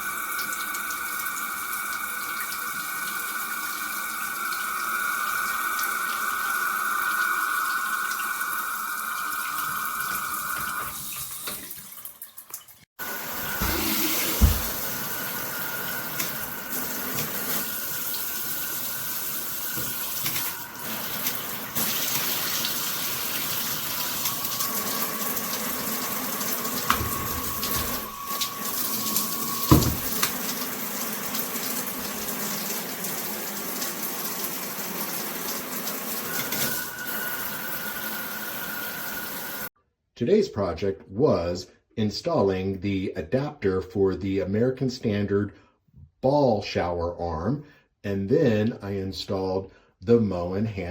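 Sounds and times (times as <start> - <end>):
shower water spraying: 13.0 - 39.7
dull thumps: 29.7 - 30.2.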